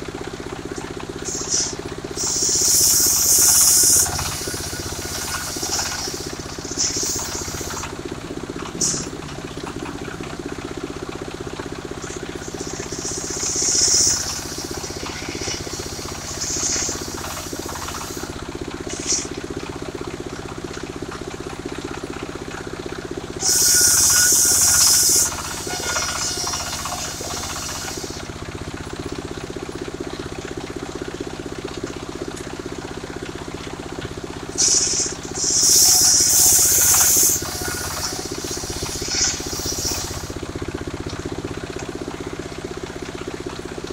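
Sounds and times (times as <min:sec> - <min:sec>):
sawmill engine running: 0:00.0 - 0:43.9
saw blade cutting wood: 0:01.2 - 0:07.9, 0:12.0 - 0:18.3, 0:18.9 - 0:19.3, 0:23.4 - 0:28.3, 0:34.6 - 0:40.4.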